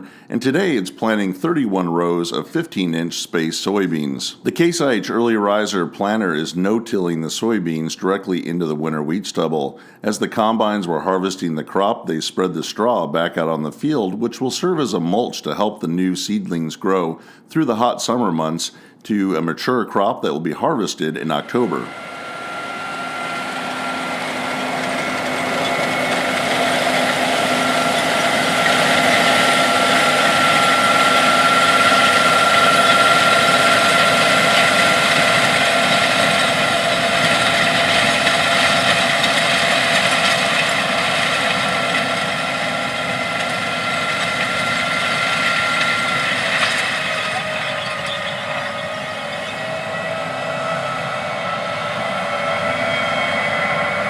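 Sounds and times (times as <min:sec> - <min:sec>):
high steady whine: 0:20.7 - 0:54.0
tractor engine under load: 0:21.3 - 0:54.0.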